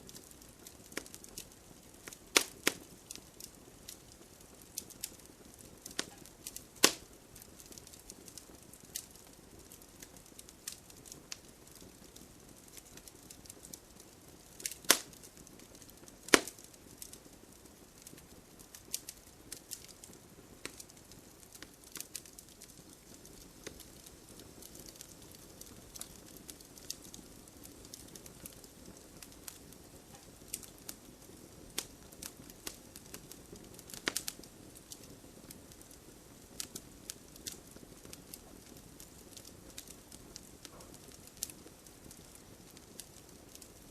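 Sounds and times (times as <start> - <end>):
campfire crackling and popping: 0.0 - 43.9.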